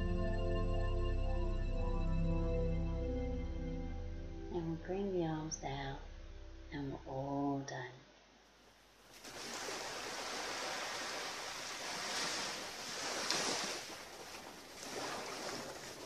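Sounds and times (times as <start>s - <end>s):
ocean waves washing onto beach: 9.1s - 16.0s.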